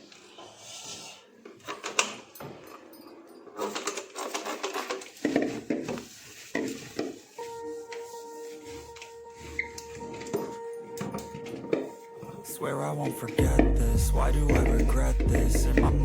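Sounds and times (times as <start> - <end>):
quick scratchy rubbing: 4.2 - 10.2.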